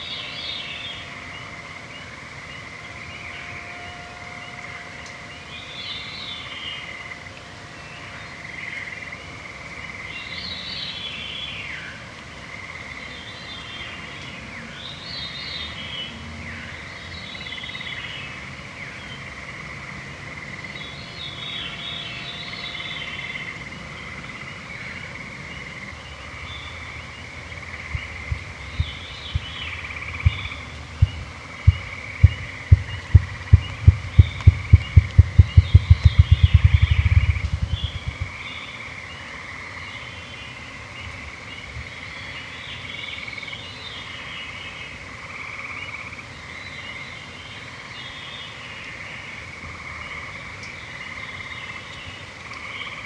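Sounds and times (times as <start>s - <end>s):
songbirds singing: 0.0s - 3.9s, 20.4s - 45.0s
high trilling hum: 27.7s - 38.3s
low thumps: 27.9s - 38.3s.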